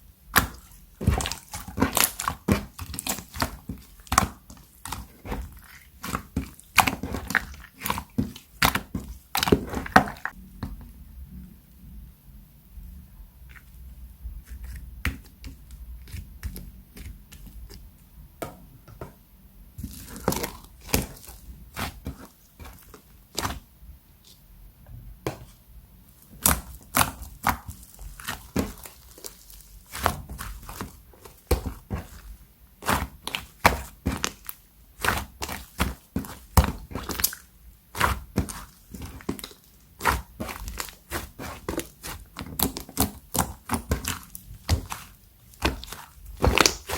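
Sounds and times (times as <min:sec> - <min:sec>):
slime crackling and popping: 0:00.3 - 0:10.4, 0:19.8 - 0:23.7, 0:26.2 - 0:46.9.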